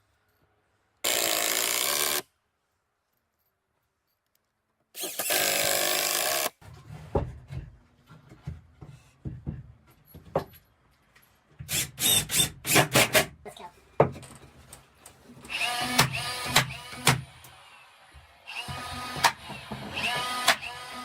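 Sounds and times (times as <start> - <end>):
wood knocking and rubbing: 6.6 - 10.5.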